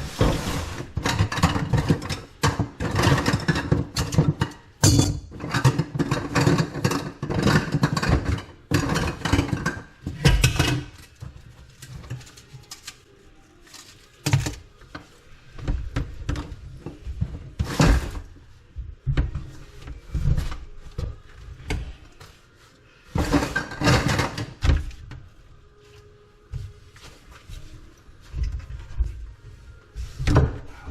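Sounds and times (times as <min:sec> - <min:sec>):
tools knocking and clattering: 0:01.0 - 0:11.4.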